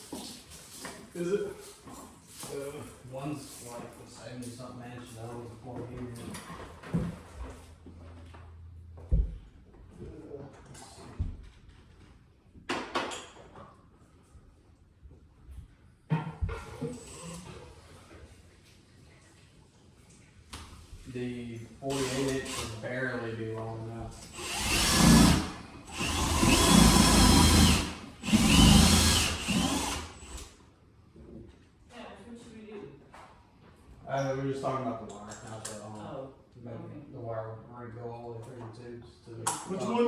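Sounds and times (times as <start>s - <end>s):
power drill whining: 16.9s - 17.6s, 21.8s - 22.8s, 24.2s - 30.5s.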